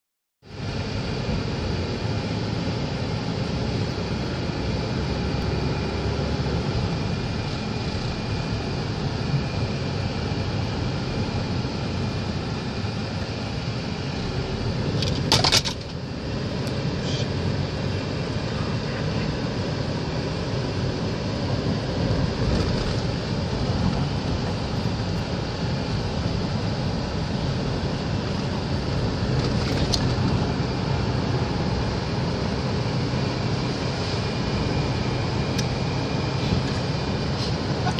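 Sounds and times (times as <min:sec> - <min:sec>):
storm wind and rain: 0:21.6 - 0:37.9.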